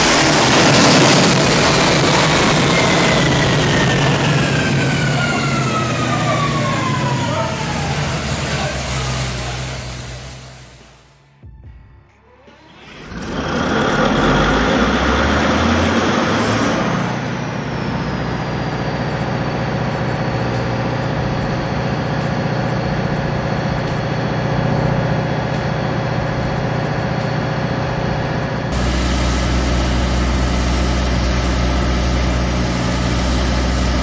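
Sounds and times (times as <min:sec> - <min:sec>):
old engine starting and idling: 0:00.0 - 0:11.2, 0:12.4 - 0:34.0
thin high whine: 0:12.5 - 0:34.0.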